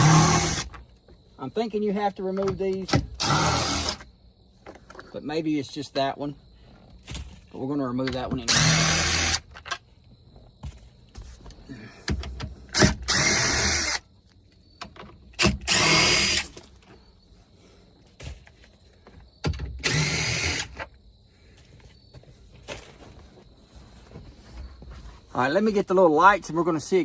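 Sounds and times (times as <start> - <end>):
power drill whirring: 0.0 - 0.7, 3.0 - 4.0, 8.5 - 9.5, 12.7 - 14.0, 15.4 - 16.5, 19.8 - 20.8.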